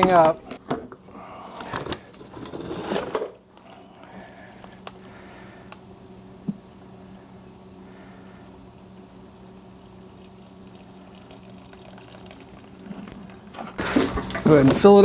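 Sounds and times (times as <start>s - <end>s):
lawn mower handling noise: 1.6s - 3.4s, 13.0s - 15.0s
gasoline draining into container: 8.8s - 14.7s.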